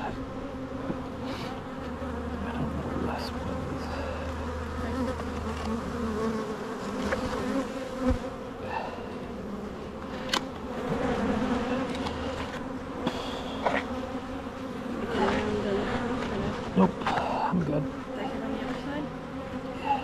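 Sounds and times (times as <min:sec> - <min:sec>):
honeybees buzzing: 0:00.0 - 0:20.0
clicks and knocks of hive frames: 0:04.9 - 0:06.3, 0:06.9 - 0:08.4, 0:09.9 - 0:14.2, 0:15.0 - 0:17.4.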